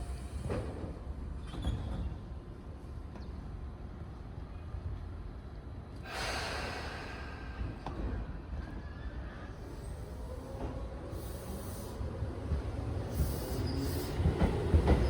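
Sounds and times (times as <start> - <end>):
electric train low rumble: 0.0 - 15.0
hiss: 6.1 - 7.8, 11.1 - 12.0.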